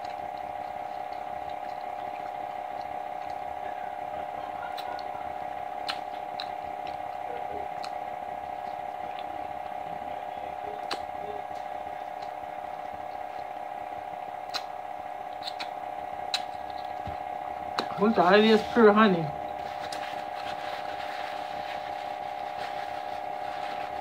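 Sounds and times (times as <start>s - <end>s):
chewing clicks and smacks: 0.0s - 18.2s, 19.4s - 21.0s
steady background hum: 0.0s - 24.0s.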